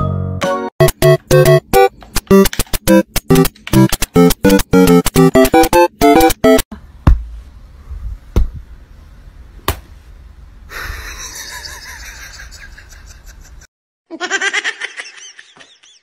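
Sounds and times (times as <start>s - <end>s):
person laughing: 10.7s - 16.0s.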